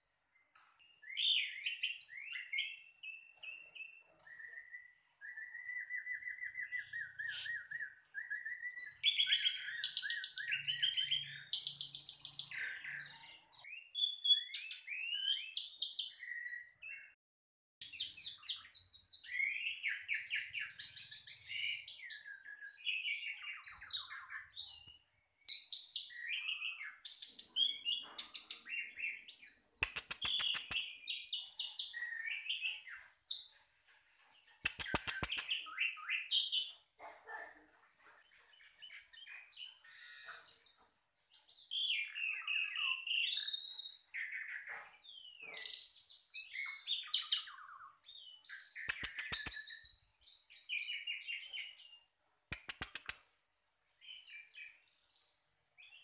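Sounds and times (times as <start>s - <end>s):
bird singing: 0.0s - 17.2s, 17.8s - 33.5s, 38.5s - 52.1s
rapid clicks: 29.8s - 30.8s, 34.6s - 35.5s, 48.9s - 49.5s, 52.5s - 53.1s.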